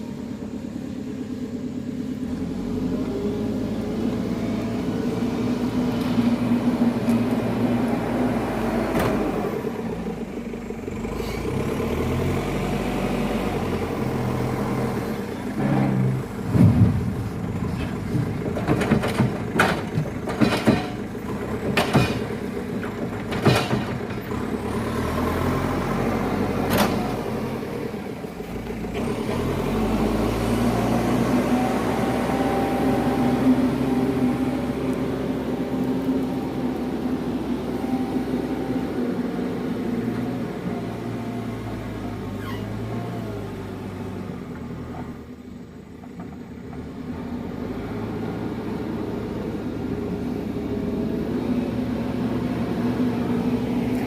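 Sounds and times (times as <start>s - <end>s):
diesel truck engine running: 0.0s - 54.0s
sharp knocks and bangs: 16.4s - 21.1s, 21.7s - 22.4s, 23.3s - 24.1s.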